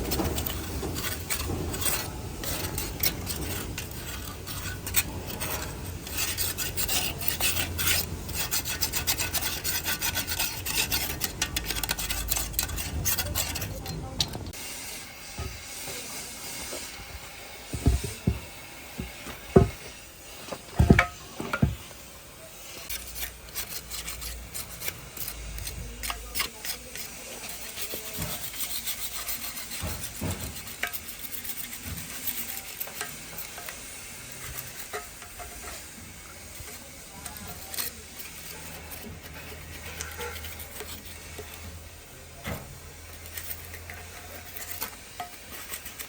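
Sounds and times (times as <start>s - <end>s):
metal parts clinking and scraping: 0.0s - 14.6s
faint hiss: 14.5s - 23.4s.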